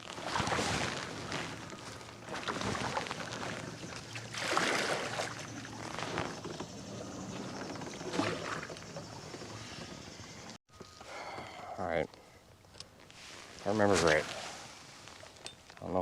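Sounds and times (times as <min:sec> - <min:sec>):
water sloshing alongside kayak: 0:00.0 - 0:10.5.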